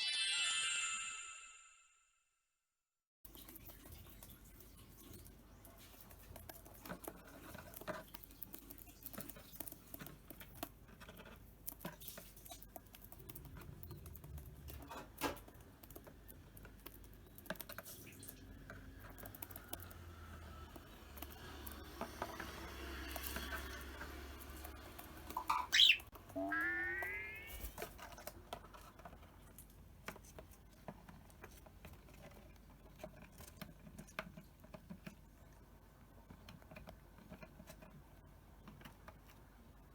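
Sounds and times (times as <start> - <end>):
bird pecking at food: 3.3 - 26.0.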